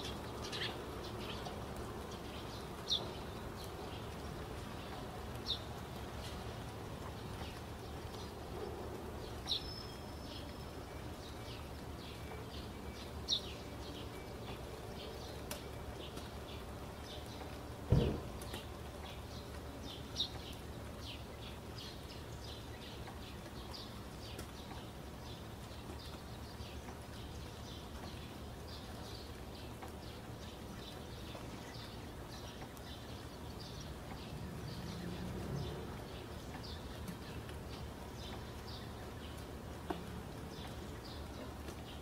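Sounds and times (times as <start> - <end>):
birds chirping: 0.0 - 42.0
low thump: 17.9 - 18.3.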